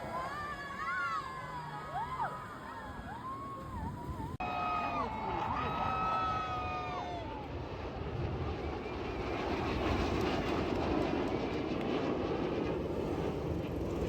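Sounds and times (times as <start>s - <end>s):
jet aircraft roar: 0.0s - 14.0s.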